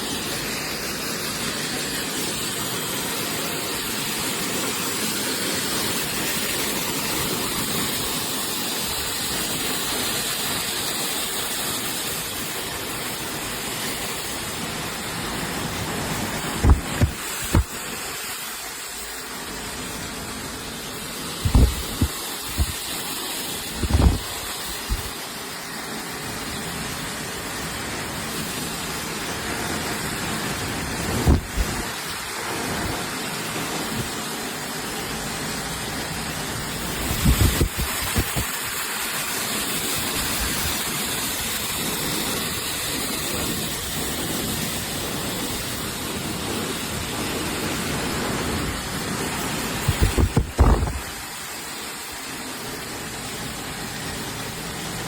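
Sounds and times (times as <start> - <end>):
hair dryer blowing: 15.5 - 18.9, 21.2 - 25.5, 27.8 - 34.8, 36.6 - 49.0, 49.7 - 51.3
short low thumps: 21.4 - 22.7.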